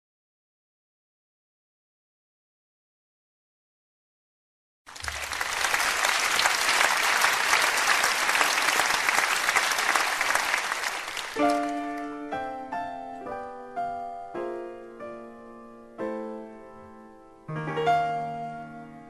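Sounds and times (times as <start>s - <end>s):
audience applause: 4.9s - 11.8s
slow piano notes: 11.4s - 19.0s.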